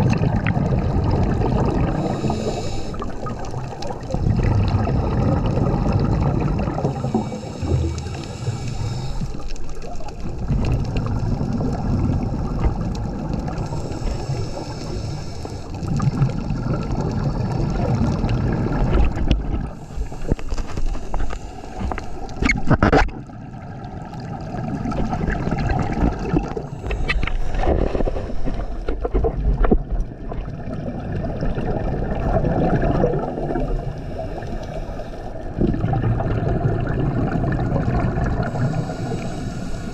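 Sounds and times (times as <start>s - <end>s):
underwater regulator bubbles: 0.0s - 39.9s.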